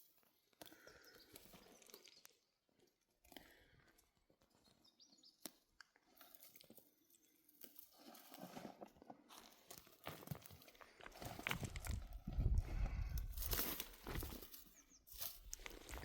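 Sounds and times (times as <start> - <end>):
small crackles: 0.0 - 16.0.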